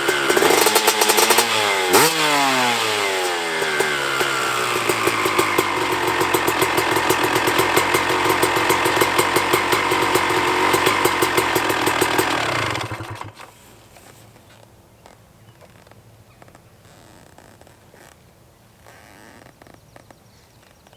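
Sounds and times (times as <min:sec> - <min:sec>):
two-stroke motorcycle engine idling: 0:00.0 - 0:13.6.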